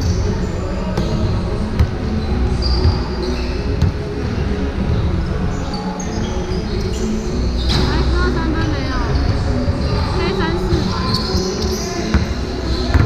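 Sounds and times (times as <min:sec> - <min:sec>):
basketball bouncing on gym floor: 0:10.6 - 0:13.0.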